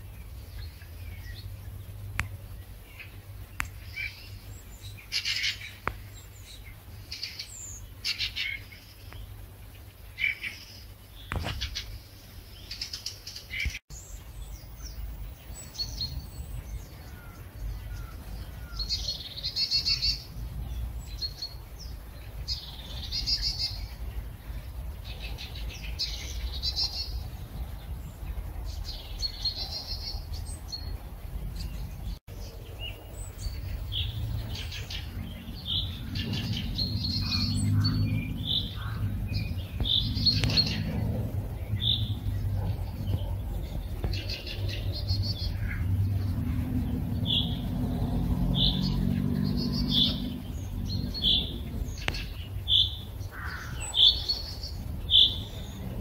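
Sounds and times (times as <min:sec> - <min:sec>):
songbirds singing: 0:00.0 - 0:56.0
low rumble: 0:14.2 - 0:56.0.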